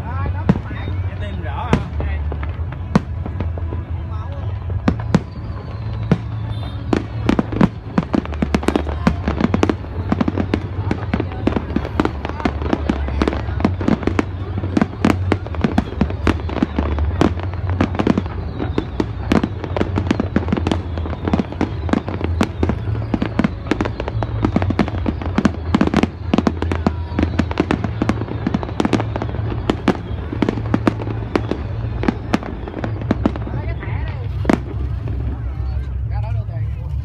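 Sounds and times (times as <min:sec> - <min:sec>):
fireworks bursting: 0:00.0 - 0:37.0.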